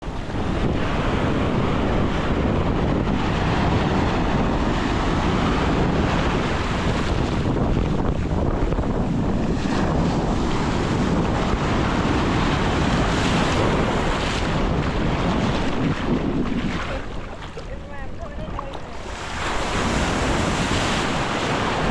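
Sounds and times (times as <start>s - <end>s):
ocean surf on beach: 0.0s - 21.9s
wind buffeting microphone: 0.0s - 21.9s.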